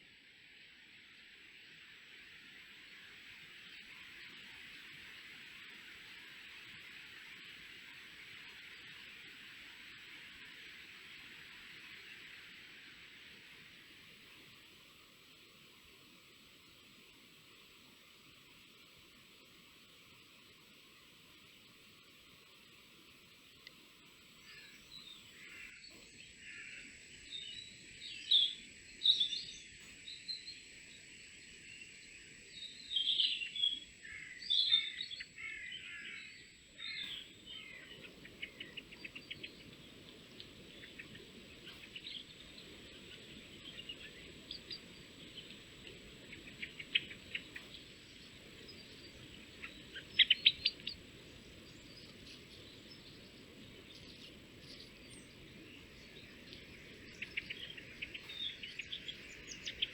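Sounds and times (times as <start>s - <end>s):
faint background hiss: 0.0s - 59.9s
songbirds chirping and trilling: 23.4s - 59.9s.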